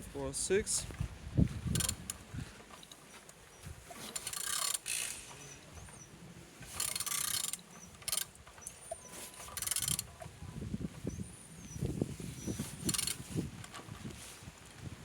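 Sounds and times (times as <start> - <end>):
engine turned over by hand: 1.6 - 6.0, 6.6 - 11.0, 12.6 - 14.8
rapid ratchet clicking: 4.1 - 5.4, 6.8 - 8.7, 9.5 - 10.1, 12.8 - 13.2.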